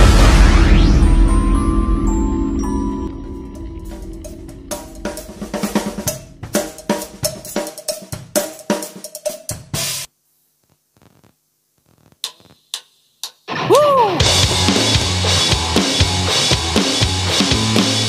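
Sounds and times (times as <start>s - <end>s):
electronic drum kit playing: 0.0s - 10.1s, 12.2s - 18.0s
band backing track: 2.6s - 10.1s, 13.5s - 18.0s.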